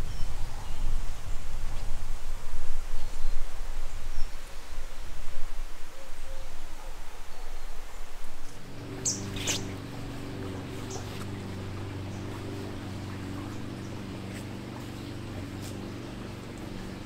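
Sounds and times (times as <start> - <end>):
steady low hum: 0.0 - 17.0
high bird chirps: 9.0 - 9.8.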